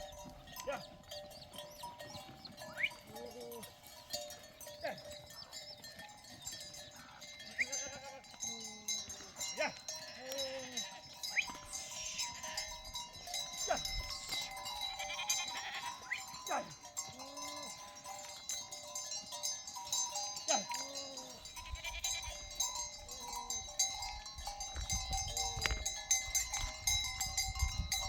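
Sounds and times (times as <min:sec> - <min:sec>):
steady ringing bells: 0:00.0 - 0:28.0
sheep bleating: 0:07.5 - 0:09.0, 0:09.6 - 0:12.8, 0:14.9 - 0:16.3, 0:20.5 - 0:22.4.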